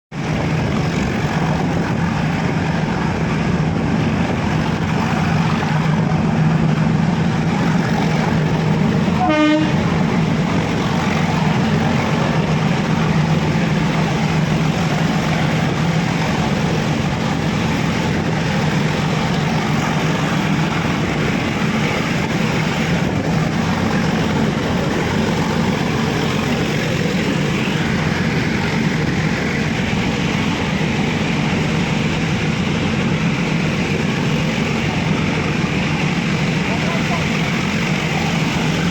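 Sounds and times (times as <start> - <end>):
train wheels on track: 0.1 - 38.9
train horn toot: 9.2 - 9.9.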